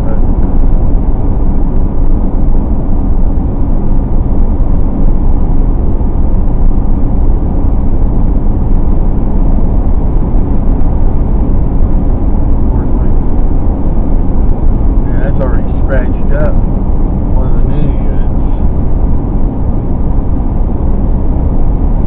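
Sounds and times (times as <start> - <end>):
road and tyre noise in car: 0.0 - 22.0.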